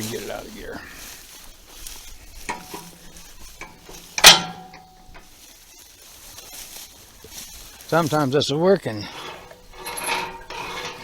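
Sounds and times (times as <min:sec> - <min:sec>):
loud ringing metal clank: 0:04.2 - 0:05.0.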